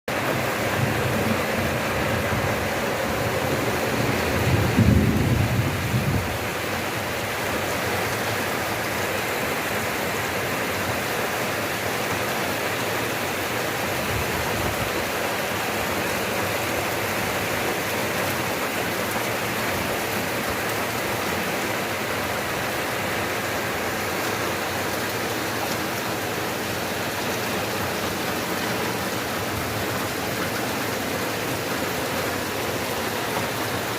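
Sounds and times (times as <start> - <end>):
steady rain falling: 0.1 - 33.9
low rumble of thunder: 0.4 - 6.6.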